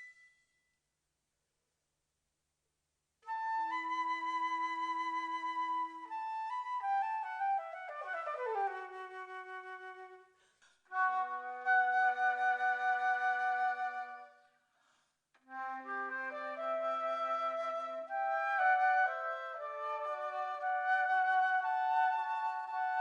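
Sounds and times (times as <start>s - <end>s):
flute ensemble playing: 3.3s - 10.2s, 10.9s - 14.3s, 15.5s - 23.0s.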